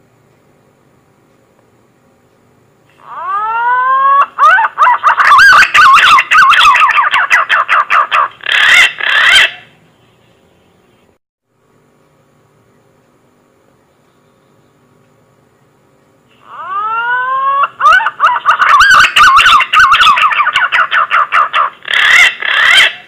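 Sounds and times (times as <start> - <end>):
pigeon whistled call: 3.1 - 7.7, 16.5 - 21.2.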